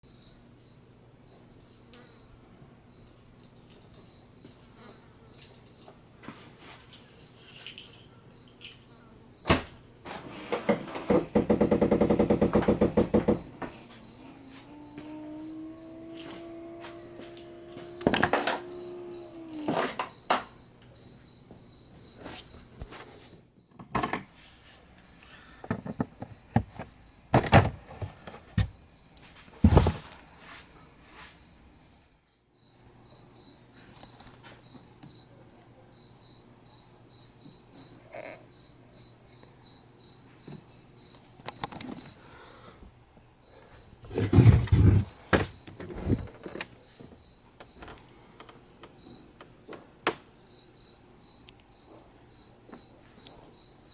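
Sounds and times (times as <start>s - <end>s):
cricket chirping: 0.0s - 53.9s
loud knocks and clunks: 9.5s - 13.8s, 25.7s - 28.8s.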